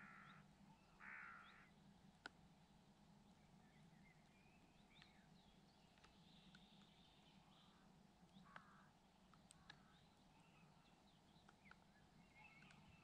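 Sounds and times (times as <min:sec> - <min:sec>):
harsh crow-like bird call: 0:00.0 - 0:00.4, 0:01.0 - 0:01.7, 0:08.5 - 0:08.9
small birds chirping: 0:00.0 - 0:13.0.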